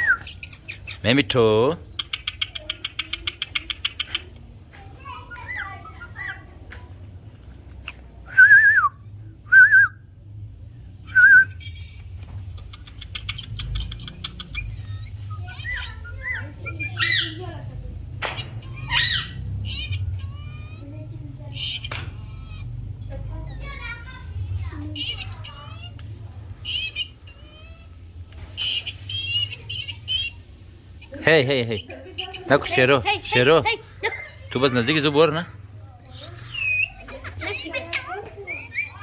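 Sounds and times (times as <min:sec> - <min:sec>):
parrots chattering: 0:00.0 - 0:06.8, 0:11.1 - 0:39.0
parrot squawks: 0:05.3 - 0:06.4, 0:14.0 - 0:17.5, 0:18.4 - 0:22.8, 0:36.2 - 0:39.0.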